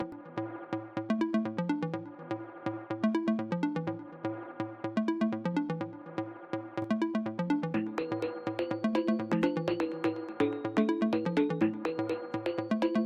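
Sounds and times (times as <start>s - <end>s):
steady bass line: 0.0s - 13.0s
plucked synth notes: 7.6s - 13.0s.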